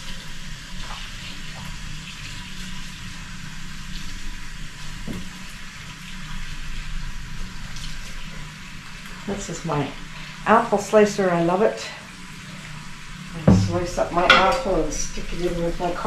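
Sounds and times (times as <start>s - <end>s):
tap water running into sink: 12.6s - 16.0s.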